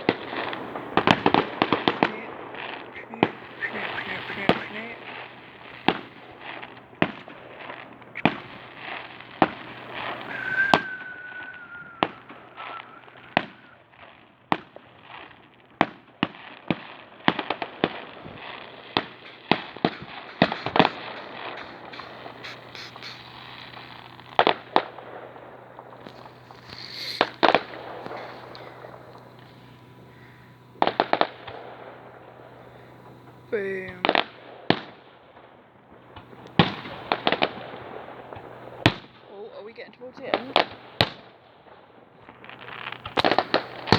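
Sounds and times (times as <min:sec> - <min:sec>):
fireworks bursting with bangs: 0:00.0 - 0:39.3, 0:40.2 - 0:43.9
fireworks crackling: 0:00.0 - 0:43.9
wavering whistle: 0:03.0 - 0:05.1, 0:09.4 - 0:13.9, 0:19.0 - 0:24.9, 0:25.9 - 0:30.5.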